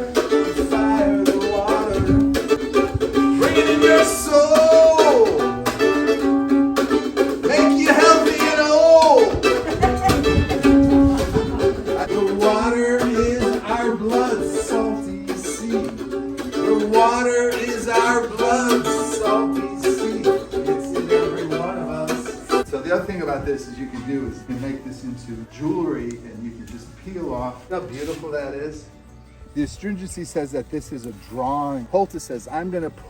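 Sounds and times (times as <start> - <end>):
people singing: 0.0 - 6.0, 7.4 - 26.6
strummed ukulele: 0.0 - 29.3.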